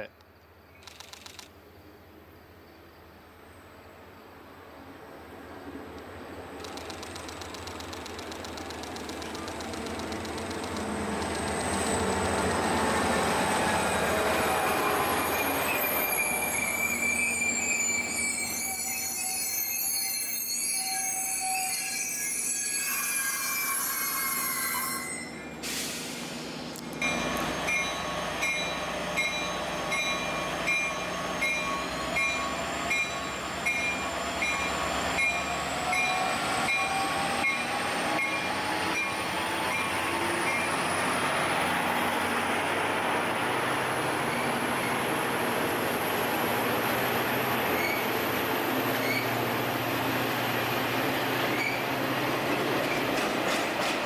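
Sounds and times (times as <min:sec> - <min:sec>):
train whine rising in pitch: 0:10.4 - 0:25.6
train wheels squealing: 0:11.3 - 0:25.6, 0:27.0 - 0:42.0, 0:44.1 - 0:45.1, 0:47.5 - 0:49.4, 0:51.4 - 0:53.1
train bell ringing: 0:15.1 - 0:25.4, 0:27.0 - 0:39.2.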